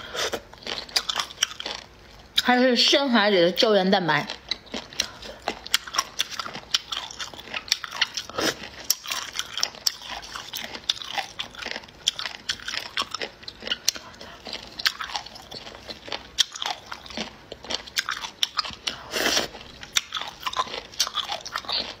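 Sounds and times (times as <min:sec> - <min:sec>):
crunchy food chewing: 0:00.0 - 0:02.5, 0:04.2 - 0:22.0.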